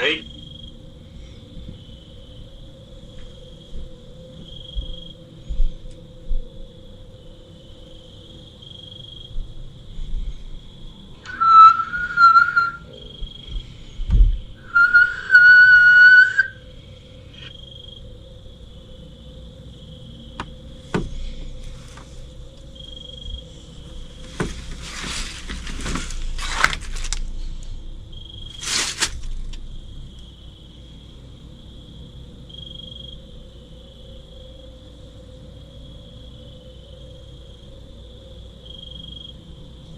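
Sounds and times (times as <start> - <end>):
faint insect chirps: 0.0 - 39.9
long whistled notes: 11.2 - 17.2
scratchy rustling: 24.2 - 27.2, 28.6 - 29.5.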